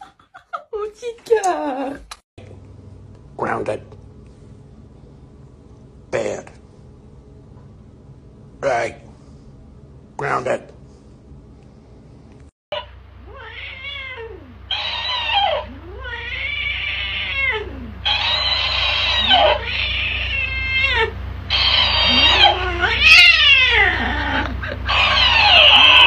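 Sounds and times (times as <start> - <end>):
cat meowing and yowling: 13.3 - 26.0.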